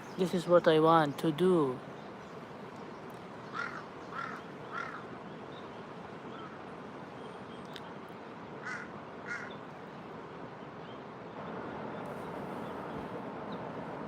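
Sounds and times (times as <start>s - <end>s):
harsh bird calls: 0.0s - 8.0s, 8.6s - 9.7s
steady outdoor hiss: 0.0s - 14.0s.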